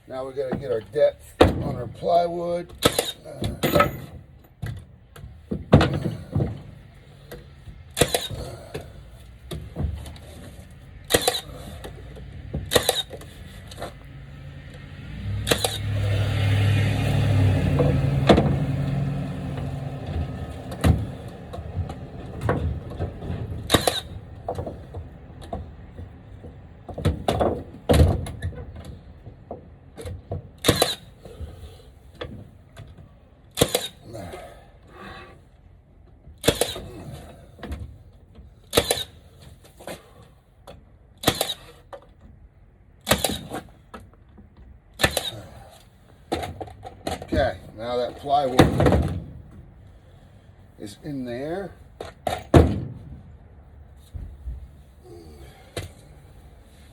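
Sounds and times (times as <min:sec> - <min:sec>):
knocks and clacks of wood and tools: 0:00.0 - 0:35.0, 0:36.0 - 0:42.4, 0:43.0 - 0:49.9, 0:50.8 - 0:53.4, 0:54.0 - 0:54.8, 0:55.5 - 0:56.2.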